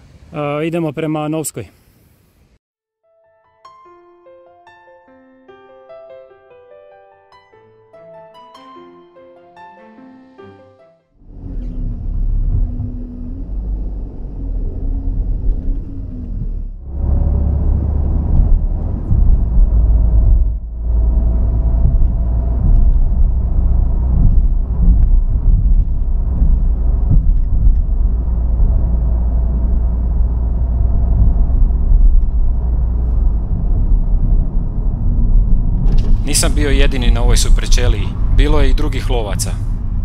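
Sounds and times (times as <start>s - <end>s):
car engine and road rumble: 11.2s - 40.0s.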